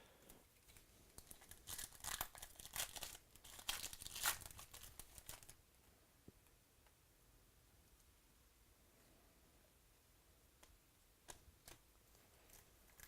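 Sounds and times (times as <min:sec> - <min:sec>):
foil wrapper crinkling and tearing: 0:01.2 - 0:05.6.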